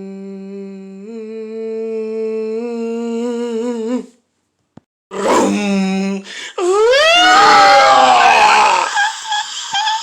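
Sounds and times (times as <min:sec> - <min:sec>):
person wailing falling tone: 0:06.6 - 0:09.1.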